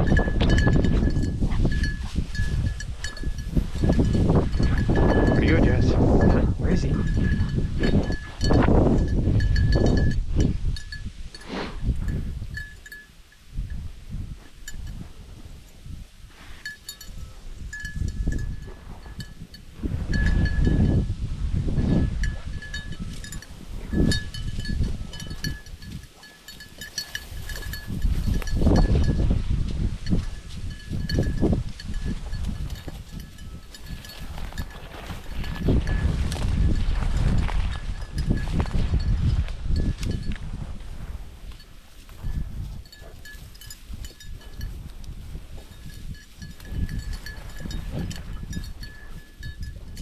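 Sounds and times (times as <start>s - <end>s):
collar bell jingling: 0.0s - 11.2s, 16.5s - 21.1s, 21.8s - 29.4s, 30.0s - 36.1s, 41.6s - 50.0s
wind rumble: 0.0s - 50.0s
low rustling: 22.0s - 39.1s
footsteps in brush: 25.3s - 28.7s.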